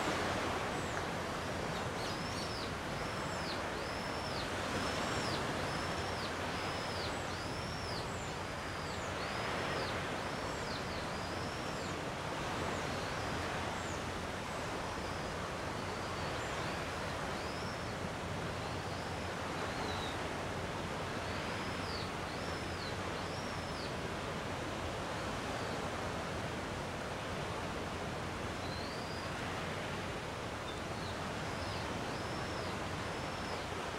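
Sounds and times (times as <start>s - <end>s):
gentle sea waves washing: 0.0s - 23.2s.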